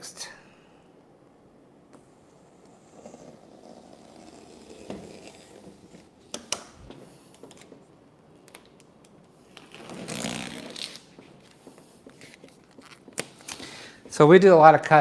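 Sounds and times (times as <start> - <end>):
vinyl wrap rustling: 2.6 - 6.2, 9.4 - 13.8.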